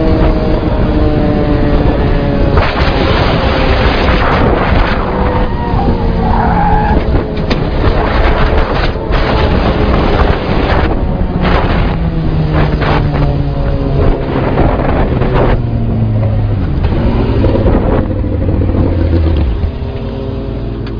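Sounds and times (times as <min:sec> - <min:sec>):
wind and road noise: 0:00.0 - 0:20.9
vehicle engine running: 0:07.4 - 0:20.9.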